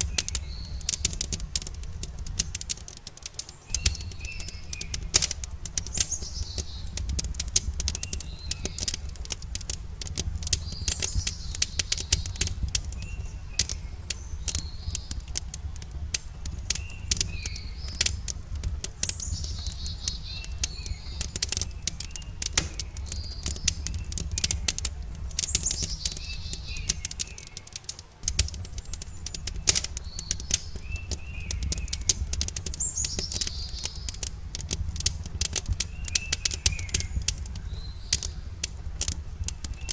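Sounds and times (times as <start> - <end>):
campfire crackling and popping: 0.0 - 39.9
songbird singing: 0.0 - 39.9.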